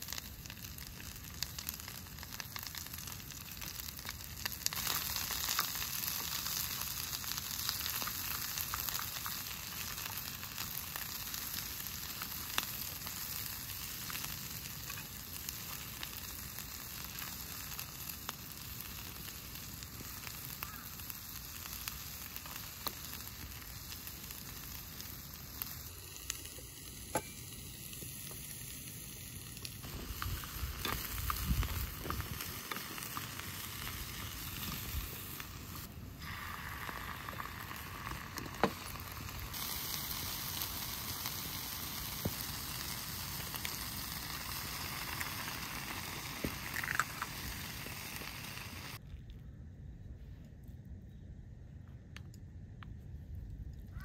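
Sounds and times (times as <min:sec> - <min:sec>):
food sizzling on a griddle: 0:00.0 - 0:49.0.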